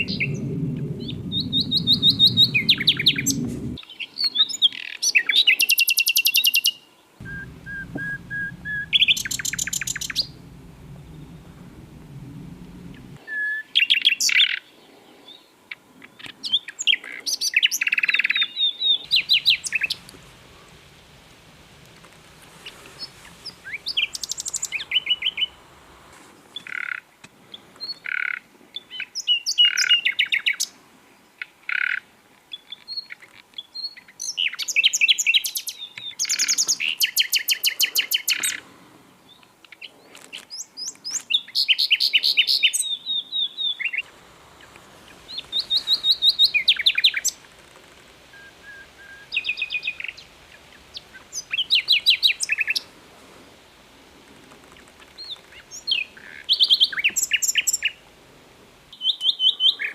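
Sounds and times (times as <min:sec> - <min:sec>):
nightingale singing trills: 0:00.0 - 0:14.7, 0:16.1 - 0:21.8, 0:22.6 - 0:25.6, 0:40.5 - 0:47.4, 0:48.3 - 0:52.9, 0:55.1 - 0:58.0, 0:58.9 - 0:59.9.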